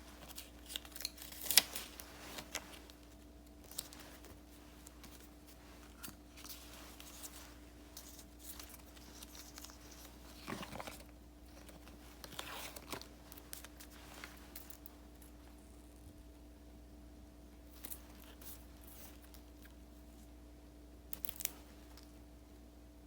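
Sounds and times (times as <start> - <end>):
paper rustling: 0.0 - 15.4
faint steady hum: 0.0 - 23.0.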